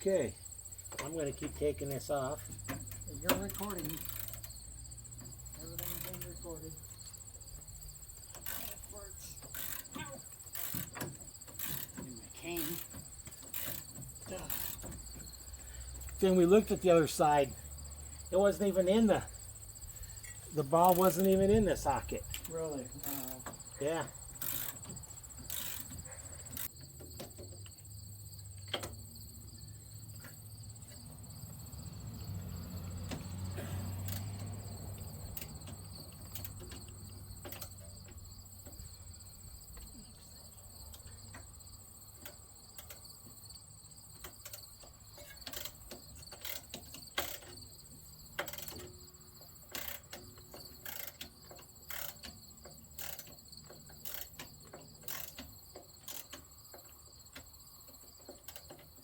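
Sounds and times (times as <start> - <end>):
crickets chirping: 0.0 - 59.0
sharp clicks and knocks: 0.8 - 16.8, 20.2 - 27.9, 28.5 - 29.1, 32.8 - 59.0.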